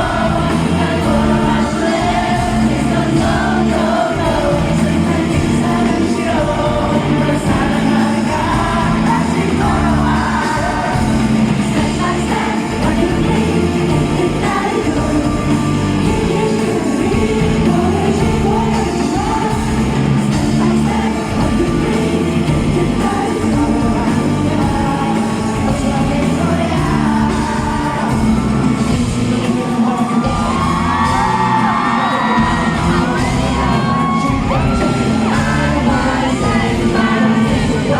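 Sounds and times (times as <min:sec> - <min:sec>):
live rock band with singer: 0:00.0 - 0:37.9
fans shouting and whooping: 0:27.8 - 0:37.9.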